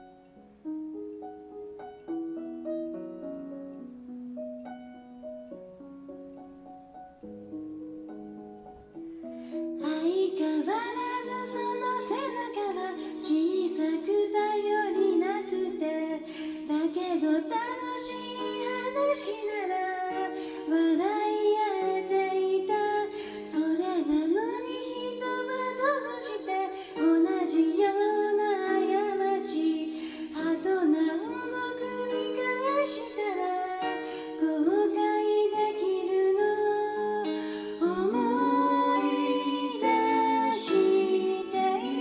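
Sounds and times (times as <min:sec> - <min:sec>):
gentle piano accompaniment: 0:00.0 - 0:42.0
woman singing pop ballad: 0:09.8 - 0:42.0
harmony backing voice: 0:37.7 - 0:42.0.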